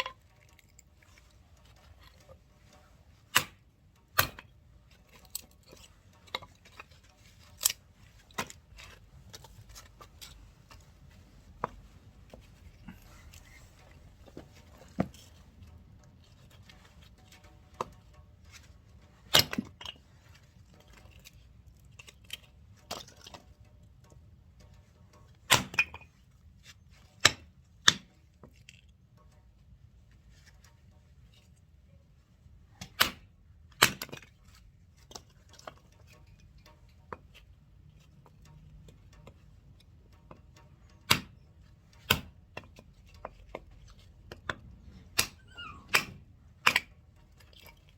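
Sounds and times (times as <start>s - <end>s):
axe chopping and splitting logs: 3.3s - 4.5s, 7.5s - 10.1s, 19.3s - 20.0s, 25.5s - 26.1s, 27.2s - 28.1s, 32.8s - 34.3s, 41.0s - 41.4s, 42.0s - 42.8s, 44.3s - 46.9s.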